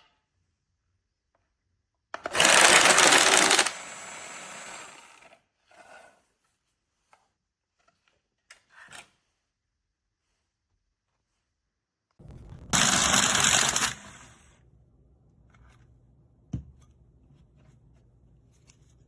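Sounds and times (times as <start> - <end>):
card shuffler whirring: 2.2 - 5.0, 12.2 - 14.6
card shuffler riffling cards: 15.4 - 19.0.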